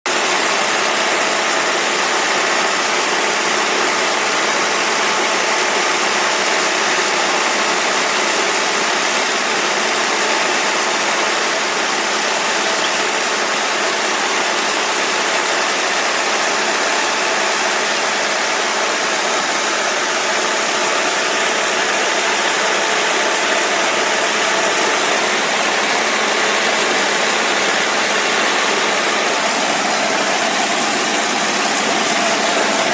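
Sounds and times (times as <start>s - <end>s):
diesel engine running: 16.3s - 32.9s.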